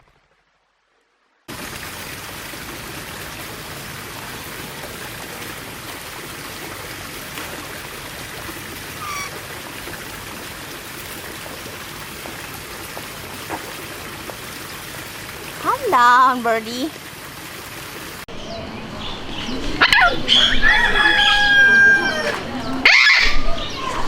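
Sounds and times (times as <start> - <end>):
running water: 1.5 - 24.0
bird chirp: 9.0 - 9.4.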